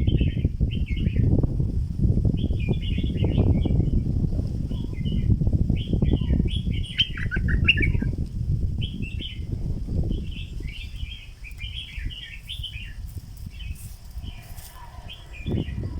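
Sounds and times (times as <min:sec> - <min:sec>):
low rumbling noise: 0:00.0 - 0:15.9
bulbul chattering song: 0:05.8 - 0:08.1.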